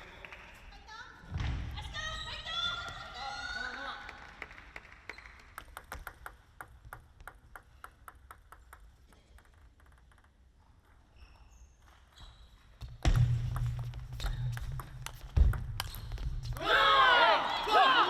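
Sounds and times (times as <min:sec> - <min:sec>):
sneakers squeaking on gym floor: 0:05.1 - 0:06.0, 0:10.6 - 0:16.8
table tennis ball clicking: 0:05.1 - 0:11.0.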